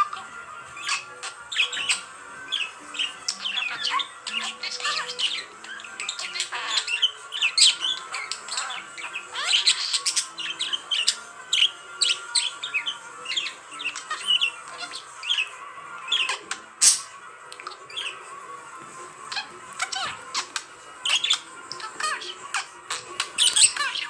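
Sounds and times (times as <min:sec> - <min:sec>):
budgerigar warbling and chattering: 0:00.0 - 0:18.3, 0:19.2 - 0:24.0.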